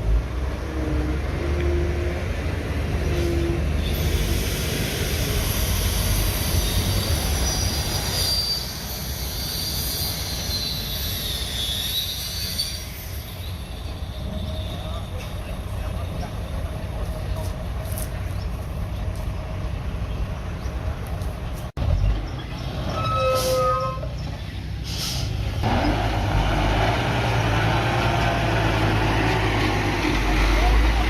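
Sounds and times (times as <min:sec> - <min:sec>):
metal squealing of crawler tracks: 0:03.0 - 0:16.8, 0:22.6 - 0:24.4.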